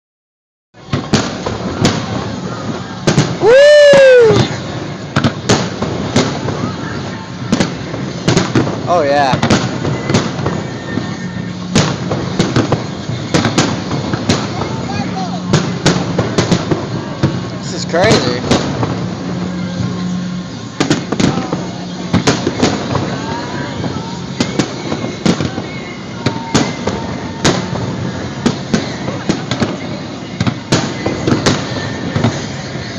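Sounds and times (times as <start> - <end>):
crowd: 0.8 - 32.9
firework crackle: 0.8 - 32.9
fireworks bangs: 0.8 - 32.9
rising and falling whoop: 3.4 - 4.5.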